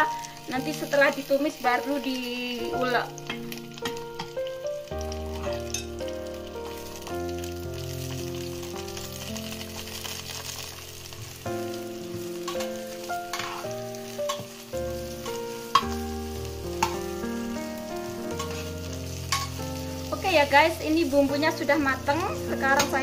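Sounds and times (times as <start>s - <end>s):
food sizzling in oil: 0.0s - 23.0s
soft background music: 0.0s - 23.0s.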